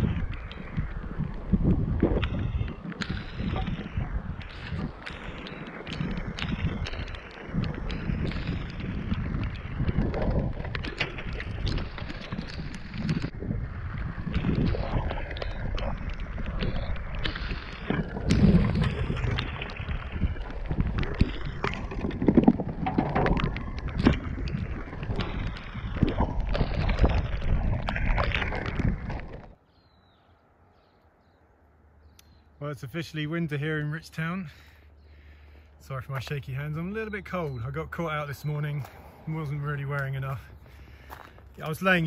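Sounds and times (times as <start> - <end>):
muffled gurgling microphone noise: 0.0 - 29.6
wind buffeting: 0.0 - 30.8, 31.9 - 42.0
knocks and clatters: 14.1 - 29.6.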